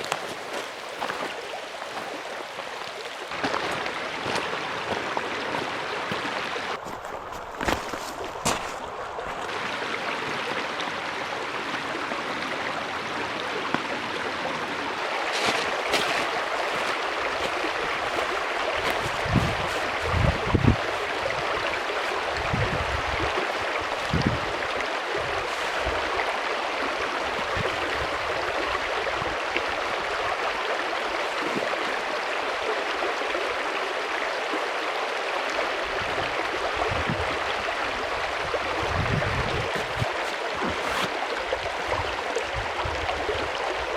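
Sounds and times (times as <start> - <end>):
mountain stream rushing: 0.0 - 43.9.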